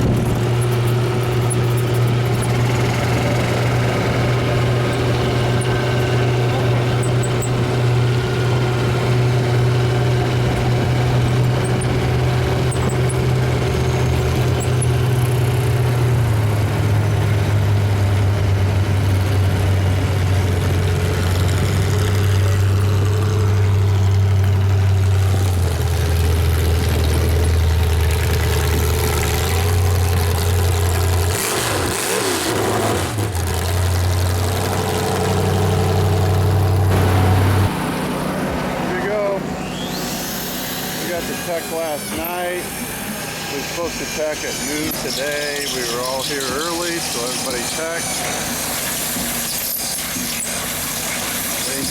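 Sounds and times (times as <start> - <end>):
vehicle engine running: 0.0 - 51.9.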